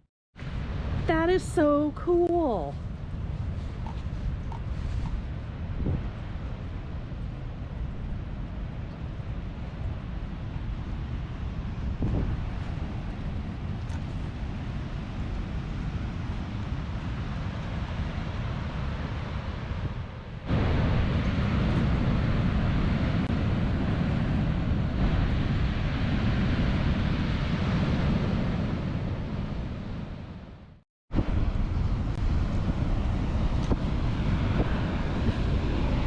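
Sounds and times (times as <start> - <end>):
ocean surf: 0.4 - 36.0
wind rushing over microphone: 0.4 - 36.0.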